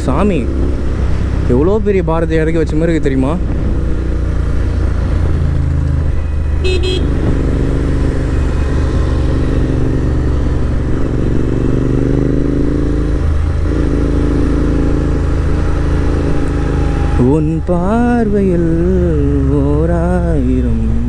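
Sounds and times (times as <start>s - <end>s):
motorcycle engine running: 0.0s - 21.0s
horn toot: 6.2s - 7.5s.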